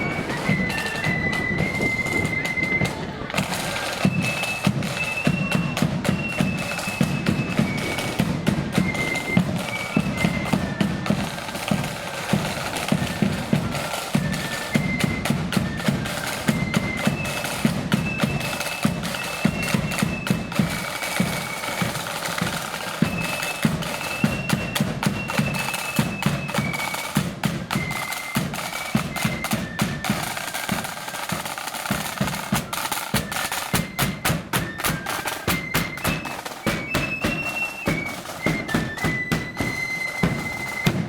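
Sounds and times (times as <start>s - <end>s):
marching band playing: 0.0s - 41.0s
rapid snare drumming: 0.0s - 41.0s.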